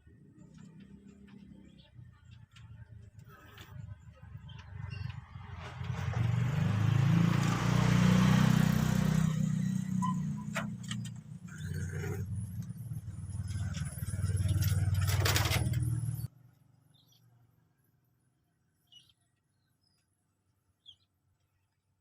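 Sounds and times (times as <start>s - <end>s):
vehicles passing on road: 0.0s - 16.9s.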